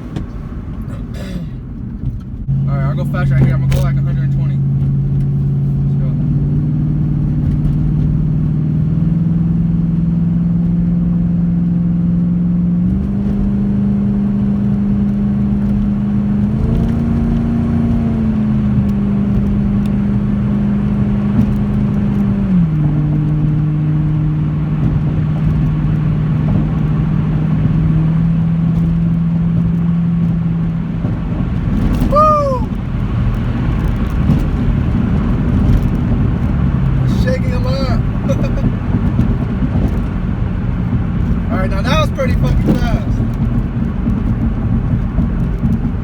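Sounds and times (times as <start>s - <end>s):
car engine running hard: 0.0s - 46.0s
road noise: 0.0s - 46.0s.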